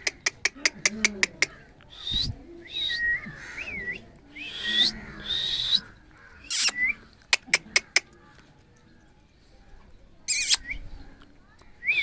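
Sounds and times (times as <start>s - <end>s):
parrot calling: 6.5s - 6.8s, 10.3s - 10.6s.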